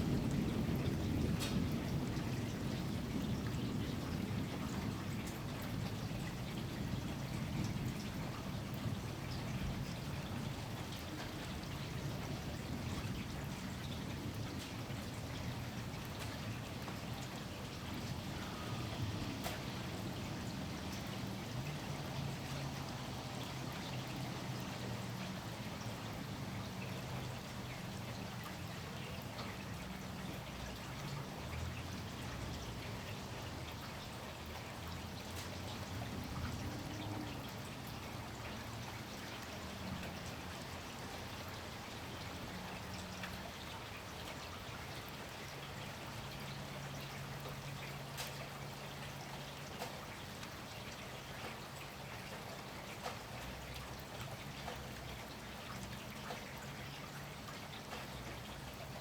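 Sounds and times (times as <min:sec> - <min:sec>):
rain falling: 0:00.0 - 0:59.0
water drips: 0:00.0 - 0:59.0.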